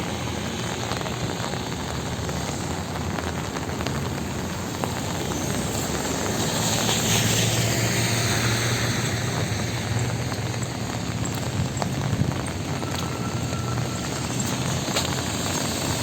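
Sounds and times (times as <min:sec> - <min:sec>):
rain falling on street: 0:00.0 - 0:16.0
vehicle passing on wet road: 0:00.0 - 0:16.0.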